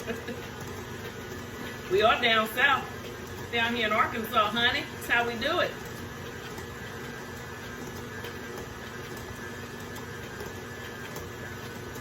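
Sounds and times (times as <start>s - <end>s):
electric mixer running: 0.0s - 12.0s.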